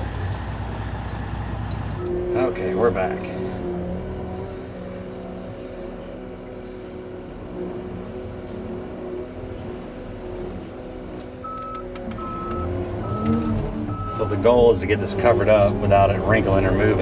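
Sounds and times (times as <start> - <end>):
diesel engine running: 0.0 - 17.0
reverse alarm beeping: 11.4 - 14.7.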